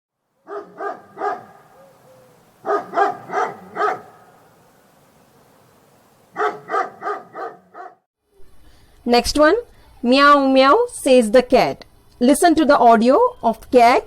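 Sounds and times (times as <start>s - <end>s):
dog barking: 0.4s - 4.5s, 6.3s - 8.1s.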